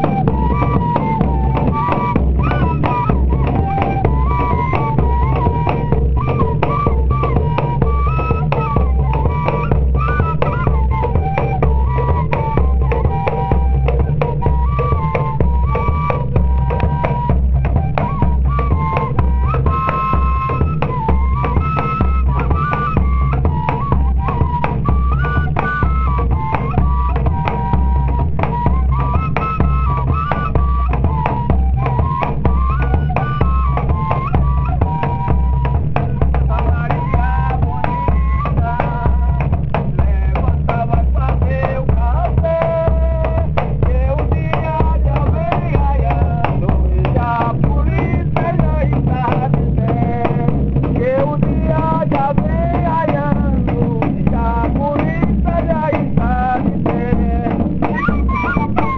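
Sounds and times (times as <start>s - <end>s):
cane fife melody: 0.0s - 39.5s
drum and percussion beat: 0.0s - 58.9s.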